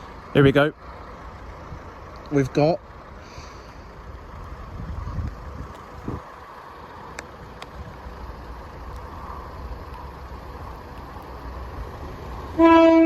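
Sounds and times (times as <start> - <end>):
train engine rumble: 0.0 - 13.0
train horn: 12.5 - 13.0.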